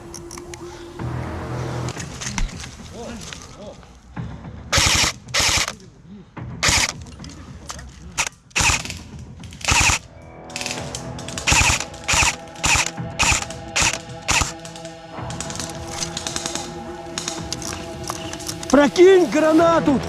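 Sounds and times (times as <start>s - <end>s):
background music: 0.0s - 20.0s
airsoft guns firing bursts: 4.7s - 5.8s, 6.6s - 7.0s, 8.2s - 10.0s, 10.6s - 14.6s.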